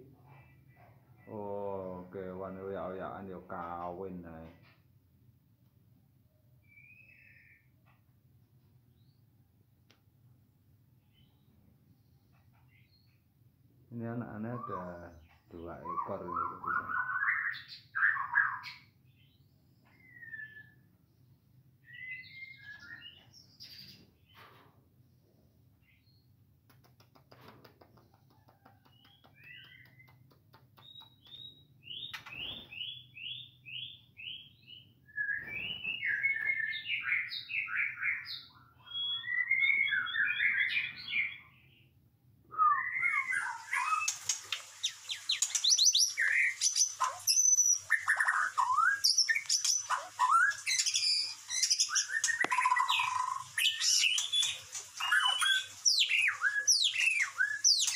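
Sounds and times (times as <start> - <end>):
bird singing: 6.6 - 7.8, 13.9 - 20.9, 21.8 - 24.0, 29.0 - 57.9.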